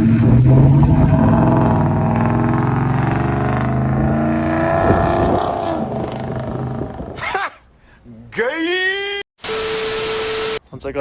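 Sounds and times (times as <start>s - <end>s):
truck engine exhaust note: 0.0s - 7.2s.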